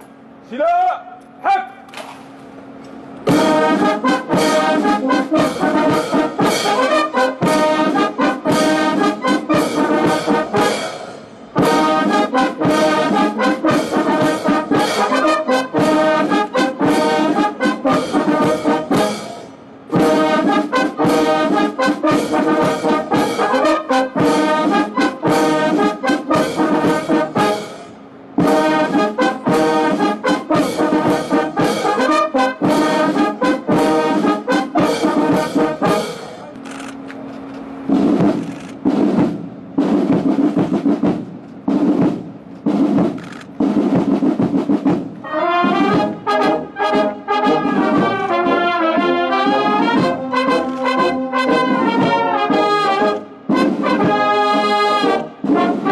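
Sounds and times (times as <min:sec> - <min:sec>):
brass band playing: 0:02.6 - 0:36.9, 0:37.7 - 0:55.9.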